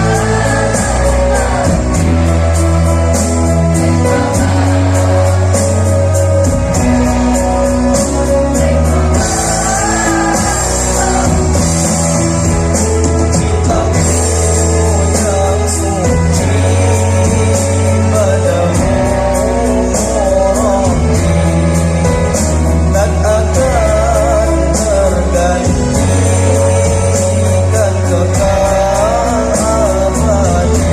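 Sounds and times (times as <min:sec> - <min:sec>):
choir singing: 0:00.0 - 0:23.0
accompanying music with steady beat: 0:00.0 - 0:30.9.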